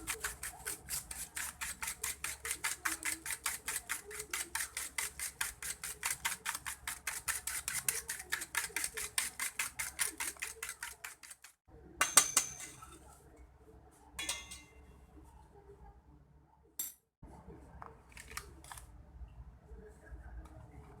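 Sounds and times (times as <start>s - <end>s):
utensil clinking against bowl: 0.0s - 13.0s, 14.2s - 14.8s.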